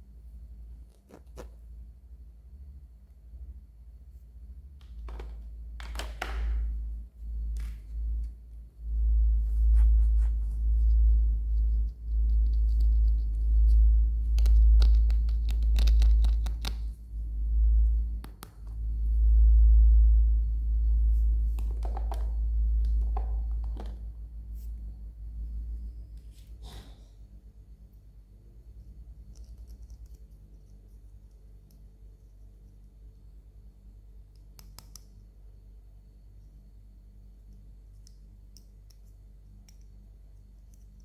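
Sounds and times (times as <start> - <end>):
deep rumble: 6.6 - 26.6.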